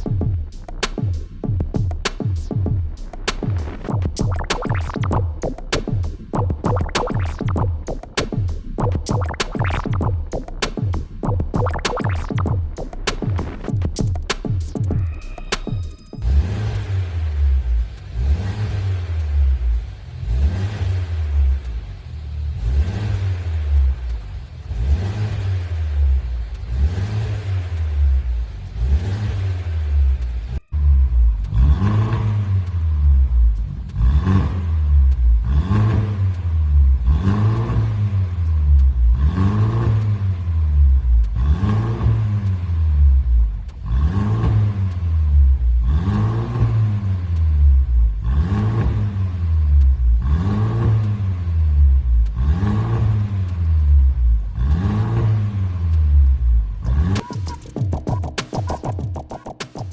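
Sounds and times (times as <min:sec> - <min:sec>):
car engine revving: 0:16.2 - 0:59.9.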